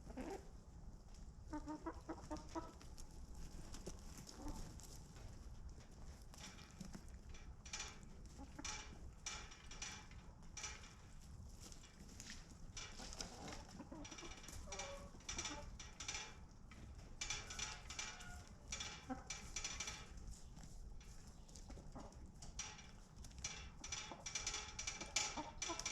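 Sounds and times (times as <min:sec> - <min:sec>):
chickens clucking: 0:00.0 - 0:00.5, 0:01.5 - 0:03.0, 0:03.6 - 0:04.9, 0:08.3 - 0:08.9, 0:12.9 - 0:15.8, 0:17.0 - 0:20.7, 0:21.3 - 0:22.6, 0:24.9 - 0:25.9.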